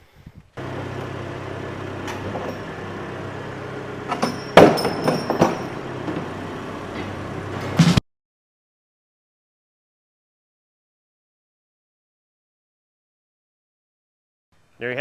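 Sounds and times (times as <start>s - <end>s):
machine hum: 0.6s - 8.0s
metallic clanks and knocks: 0.6s - 8.0s.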